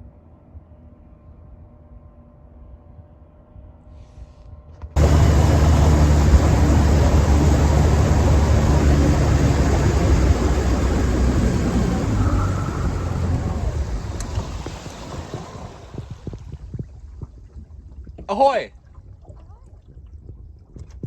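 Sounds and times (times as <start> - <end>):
loud rushing noise: 5.0 - 16.2
boat motor running: 5.0 - 16.4.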